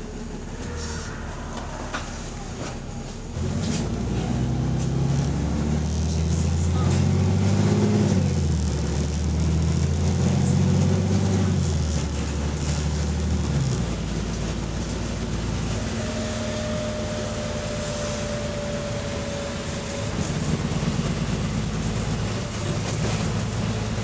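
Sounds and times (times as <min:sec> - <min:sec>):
bus diesel engine: 0:00.0 - 0:24.0
thin steady whine: 0:15.5 - 0:23.9.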